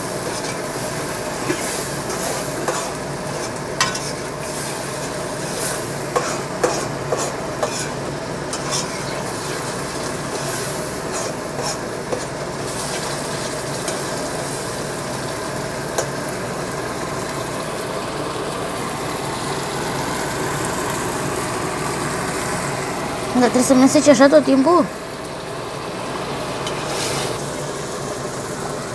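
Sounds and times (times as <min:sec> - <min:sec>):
food sizzling in a pot: 0:00.0 - 0:28.9
metal spoon scraping a pot: 0:05.6 - 0:09.7, 0:10.3 - 0:12.3.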